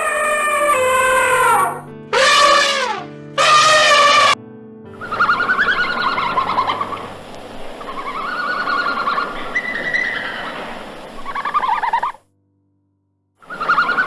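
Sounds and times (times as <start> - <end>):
birds calling with trills: 5.0 - 7.2, 7.8 - 12.2, 13.4 - 14.0
steady hiss: 5.1 - 12.2.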